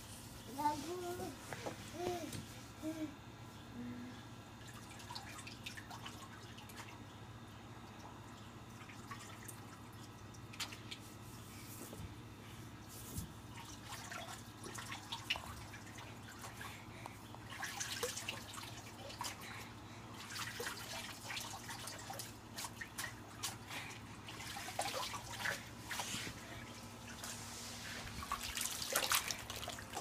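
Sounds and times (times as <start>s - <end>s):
water splashing and dripping: 17.4s - 19.4s, 28.2s - 30.0s.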